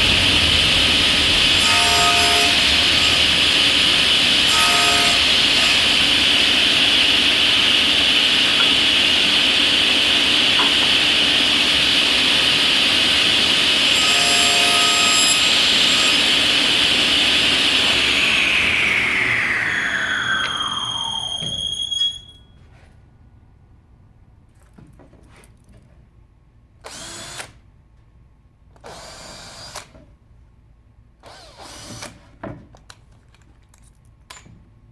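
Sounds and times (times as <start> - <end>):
power tool cutting wood: 0.0 - 22.2
brief squeal: 17.9 - 22.8.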